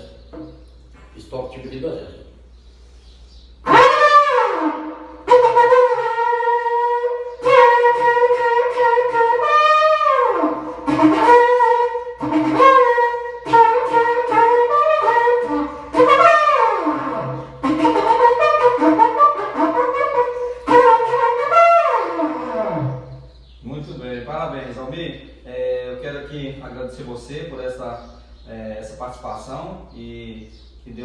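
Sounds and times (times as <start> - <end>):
ox-horn trumpet blasts: 3.6 - 23.3.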